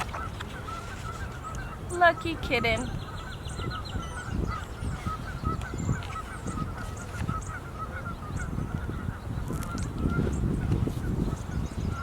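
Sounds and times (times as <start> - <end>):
geese honking: 0.0 - 9.2.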